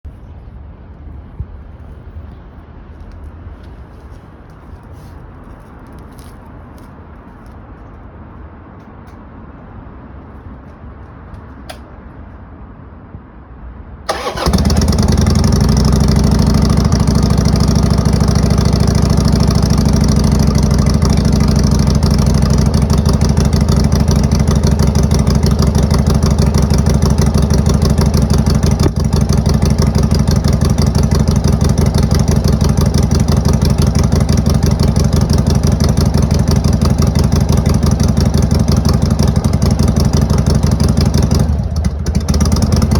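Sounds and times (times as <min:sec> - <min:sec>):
motorcycle engine starting and idling: 0:14.1 - 0:42.9.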